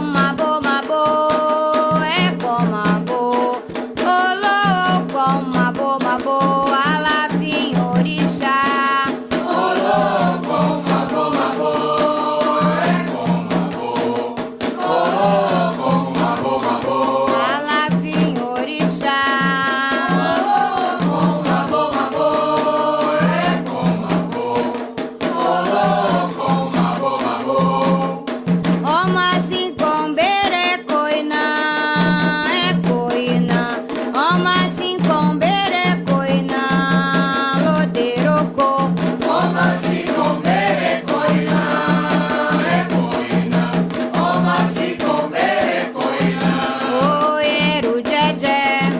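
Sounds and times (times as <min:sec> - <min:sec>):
group of voices singing: 0:00.0 - 0:29.4, 0:35.4 - 0:48.9
drums and percussion beat: 0:00.0 - 0:48.9
person singing a chant: 0:07.7 - 0:24.7.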